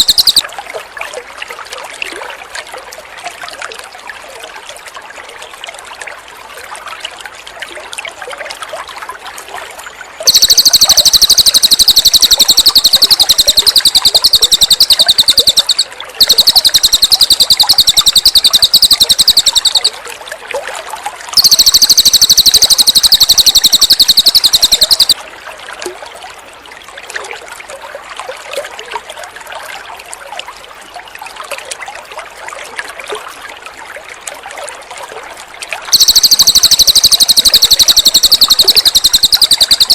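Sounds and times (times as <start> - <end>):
songbird rapid trilling: 0.0 - 0.4, 10.3 - 19.9, 21.4 - 25.2, 35.9 - 39.9
water trickling: 0.0 - 39.9.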